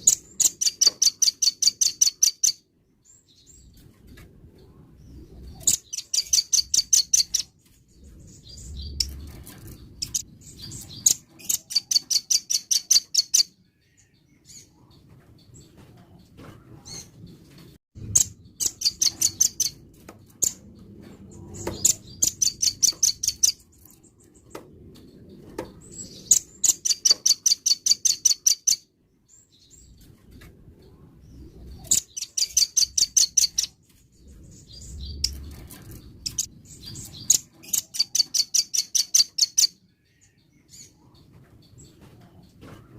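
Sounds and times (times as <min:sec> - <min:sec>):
bird singing rapid trills: 0:00.0 - 0:03.6, 0:05.5 - 0:07.6, 0:08.2 - 0:14.7, 0:18.0 - 0:19.8, 0:21.5 - 0:24.0, 0:26.0 - 0:29.9, 0:31.8 - 0:41.2
faint low rumble: 0:33.7 - 0:37.3.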